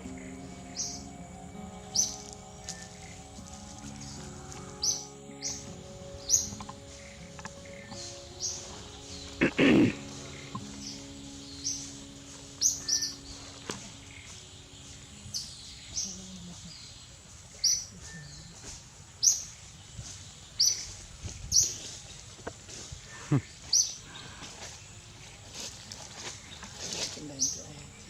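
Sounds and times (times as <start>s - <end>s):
bird chirping: 0.0s - 22.3s.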